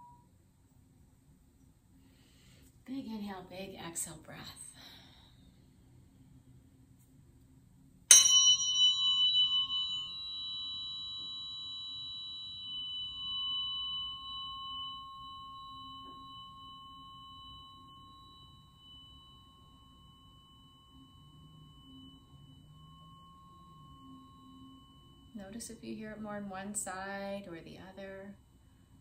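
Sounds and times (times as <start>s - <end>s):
tuning fork ringing: 0.0s - 0.4s, 8.1s - 29.0s.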